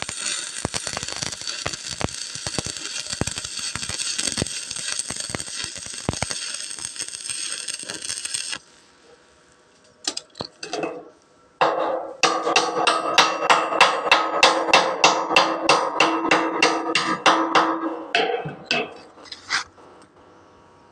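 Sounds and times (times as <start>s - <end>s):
welding arc crackling: 0.0s - 8.8s
hammer striking metal: 11.6s - 19.2s.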